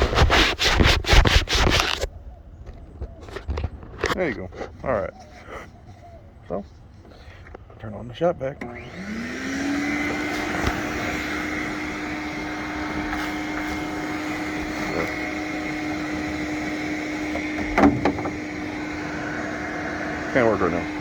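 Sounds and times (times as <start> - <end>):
shop vac motor whine: 8.5 - 21.0
suction air rushing: 8.9 - 21.0.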